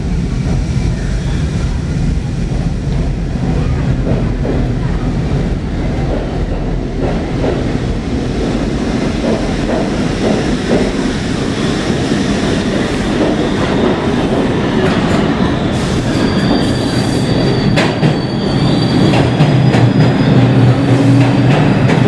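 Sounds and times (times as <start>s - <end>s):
subway train rumbling on track: 0.0s - 22.0s
high-pitched wheel squeal: 16.0s - 20.8s.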